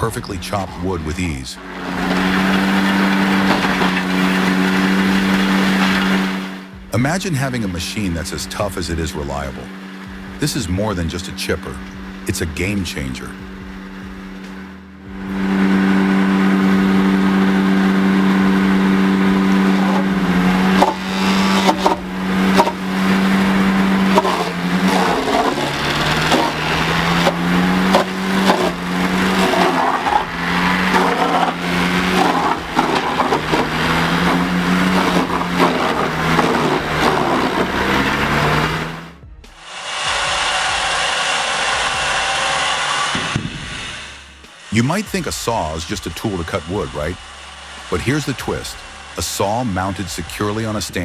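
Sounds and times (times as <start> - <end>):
wood crunching and cracking: 0.0 - 7.6, 15.4 - 39.2
wood chipper engine running: 0.0 - 51.0.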